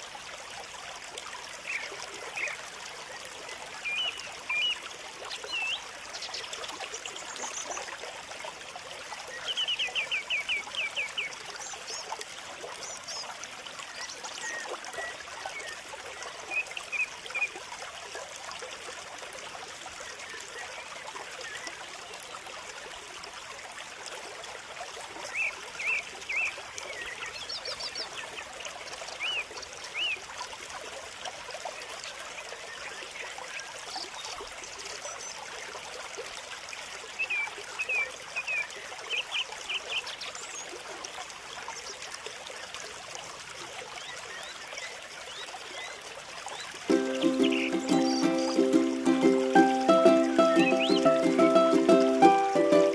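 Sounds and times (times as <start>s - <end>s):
water trickling: 0.0s - 52.9s
small birds chirping: 46.6s - 48.8s, 49.8s - 51.7s
bird trill: 47.0s - 48.7s, 50.0s - 51.3s.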